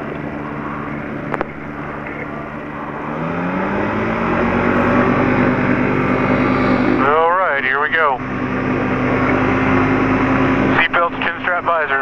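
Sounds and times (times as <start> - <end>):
light aircraft piston engine: 0.0 - 12.0.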